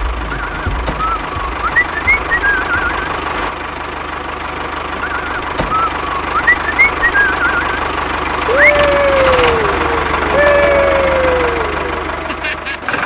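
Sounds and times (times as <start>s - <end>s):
small engine idling with knock: 0.0s - 13.0s.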